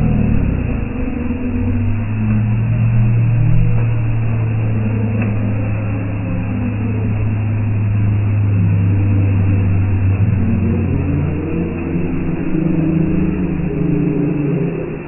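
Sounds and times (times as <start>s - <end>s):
engine running with low drone: 0.0s - 15.0s.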